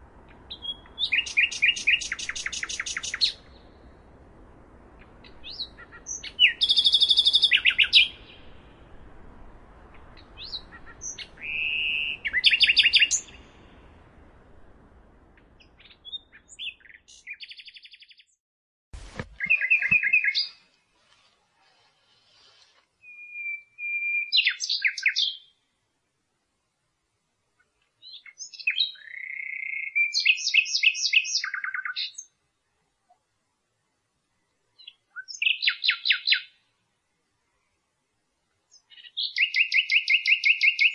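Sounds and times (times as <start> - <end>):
faint hiss: 0.0 - 17.2, 19.0 - 23.7
nightingale singing: 0.2 - 3.9, 5.0 - 14.0, 15.3 - 18.4, 19.2 - 20.7, 22.3 - 25.6, 27.6 - 32.4, 34.7 - 36.6, 38.7 - 40.9.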